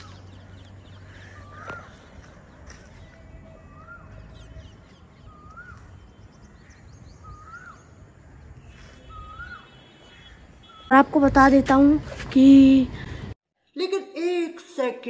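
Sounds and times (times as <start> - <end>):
distant birds chirping: 0.0 - 14.1
bird whistled call: 3.5 - 4.5, 5.2 - 6.0, 7.2 - 8.0, 8.7 - 10.0.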